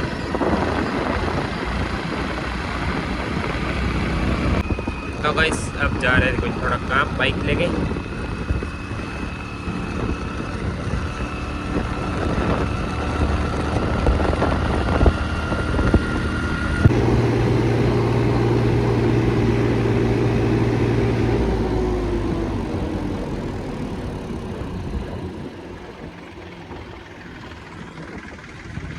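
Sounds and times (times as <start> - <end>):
motorcycle engine running: 16.9 - 27.8.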